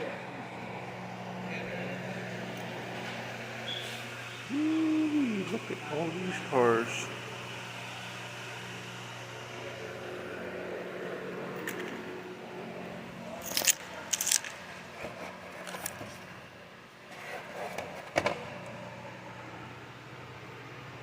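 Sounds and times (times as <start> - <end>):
steady low hum: 0.0 - 21.0
handling clicks and scrapes: 13.4 - 16.3.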